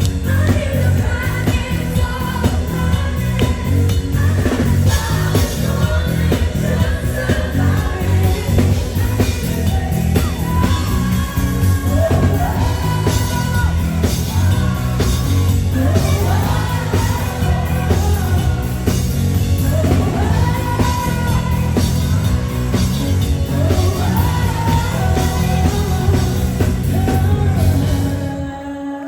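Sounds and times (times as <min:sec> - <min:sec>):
pop-rock band playing: 0:00.0 - 0:28.7
woman singing: 0:00.0 - 0:29.0.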